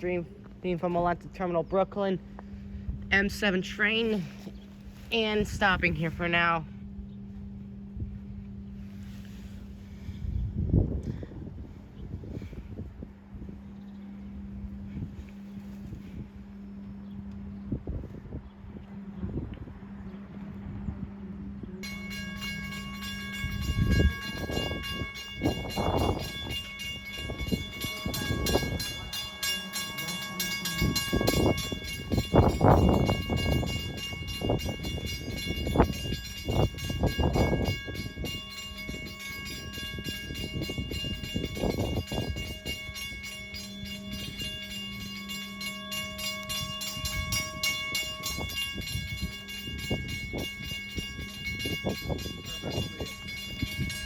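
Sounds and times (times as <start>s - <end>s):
electric train humming: 12.8s - 54.0s
high steady tones: 21.8s - 54.0s.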